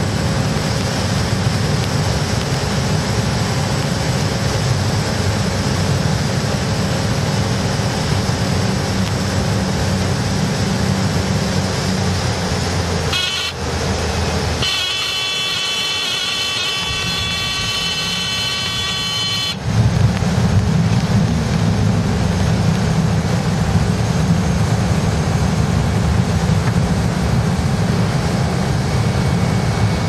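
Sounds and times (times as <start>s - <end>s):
turboprop engine drone: 0.0s - 30.0s
electronic warning tone: 13.1s - 13.7s, 14.6s - 19.6s
rushing air: 16.4s - 30.0s.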